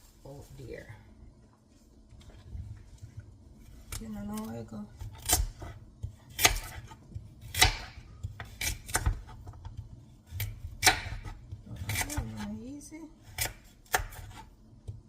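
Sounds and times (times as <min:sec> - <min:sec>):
knife cutting food: 0:03.6 - 0:12.6, 0:13.2 - 0:14.6.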